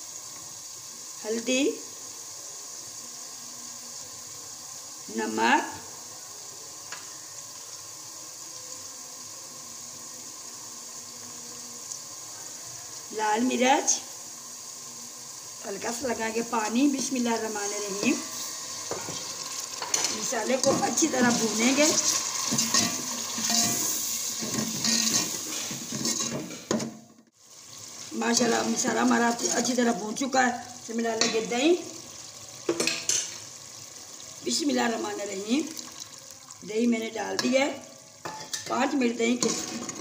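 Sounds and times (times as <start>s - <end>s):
food sizzling in oil: 0.0s - 40.0s
metal spoon scraping pot: 19.8s - 26.7s.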